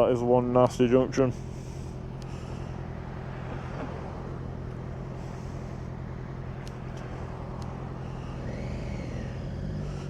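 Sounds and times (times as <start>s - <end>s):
motorcycle engine running: 0.0s - 10.0s
road and wind noise: 0.0s - 10.0s
faint ticks: 1.7s - 2.7s, 6.6s - 8.4s.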